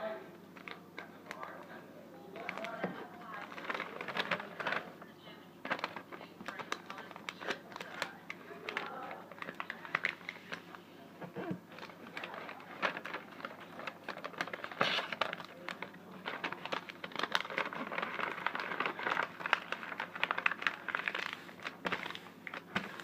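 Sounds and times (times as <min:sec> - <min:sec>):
thin sheet material crinkling: 0:02.3 - 0:23.0.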